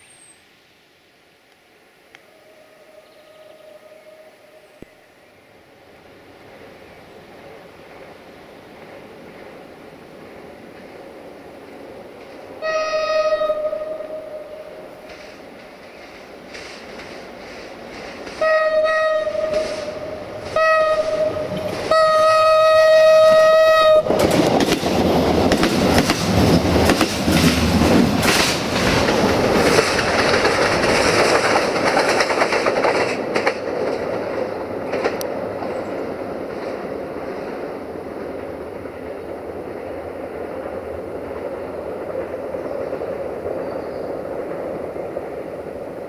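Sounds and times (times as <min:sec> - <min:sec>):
train rumbling past: 0:02.2 - 0:46.0
train horn blasts: 0:12.6 - 0:14.9, 0:18.4 - 0:24.2
wheels clicking over rail joints: 0:14.9 - 0:22.7, 0:23.3 - 0:45.5.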